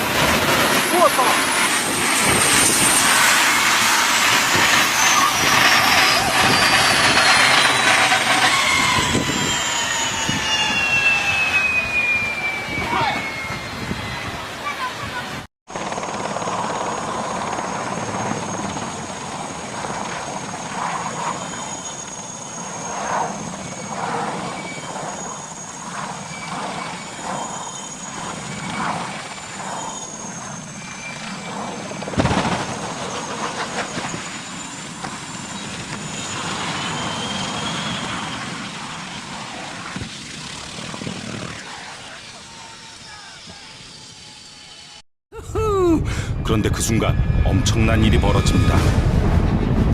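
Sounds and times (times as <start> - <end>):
helicopter engine and rotor: 0.0 - 45.0, 46.3 - 49.9
thin high wavering whine: 0.8 - 14.8, 20.4 - 32.2, 32.9 - 45.0
sudden loud bang: 48.4 - 49.9.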